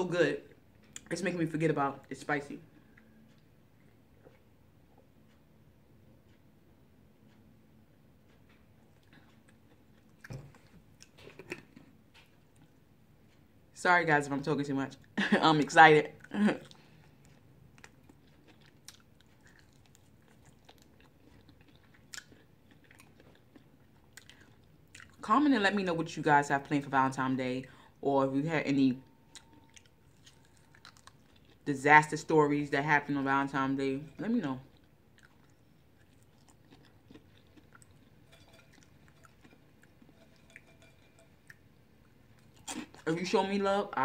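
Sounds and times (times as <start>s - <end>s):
faint chewing and crunching: 0.1s - 44.0s.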